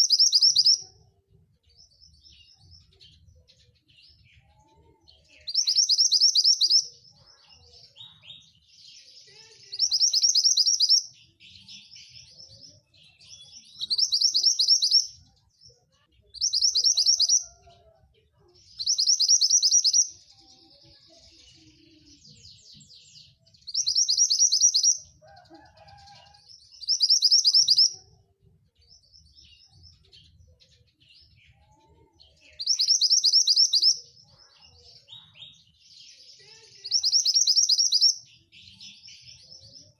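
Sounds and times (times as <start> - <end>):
bird twittering: 0.0 - 0.8, 5.5 - 6.9, 16.3 - 17.5, 18.8 - 20.1, 32.6 - 34.0
bird trilled song phrases: 0.0 - 39.9.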